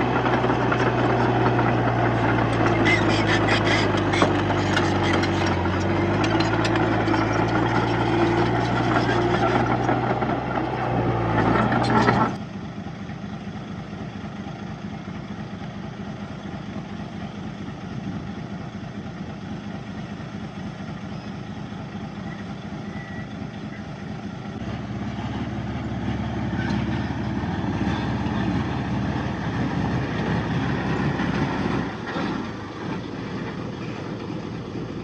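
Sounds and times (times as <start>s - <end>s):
heavy diesel engine running: 0.0s - 35.0s
metallic clanks: 2.5s - 9.7s.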